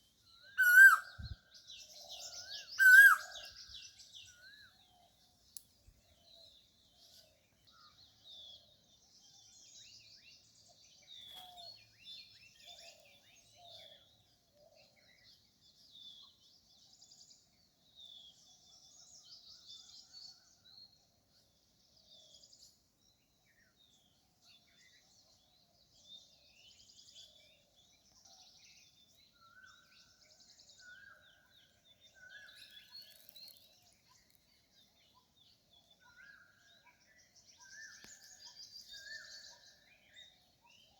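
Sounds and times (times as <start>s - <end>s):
bird whistling: 0.6s - 1.3s, 2.8s - 3.3s
small birds chirping: 23.5s - 40.9s.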